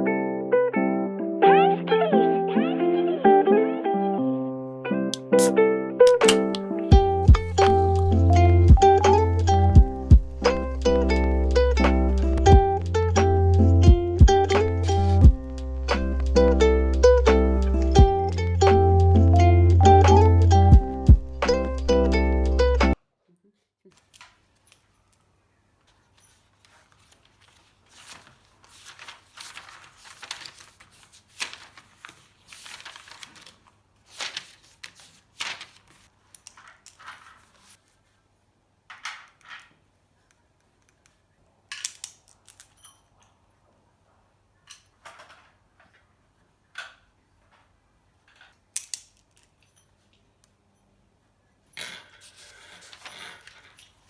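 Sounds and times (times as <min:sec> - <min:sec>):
rustling and scraping: 0:24.0 - 0:38.2, 0:52.0 - 0:54.0.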